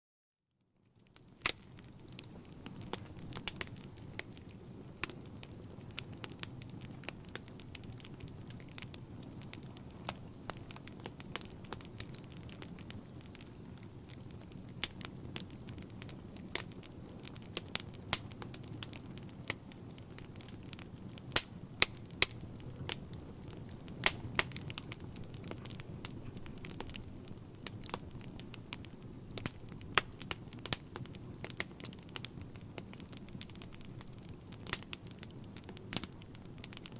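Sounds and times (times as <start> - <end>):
crackles and pops of logs: 0.8 - 36.9
rumble of fire flames: 0.8 - 36.9.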